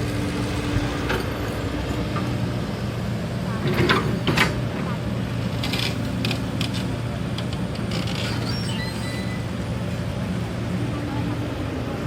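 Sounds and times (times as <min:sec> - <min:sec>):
heavy machine engine running: 0:00.0 - 0:12.0
metallic creaks and squeaks: 0:07.8 - 0:09.6
faint thin squeal: 0:08.2 - 0:09.7.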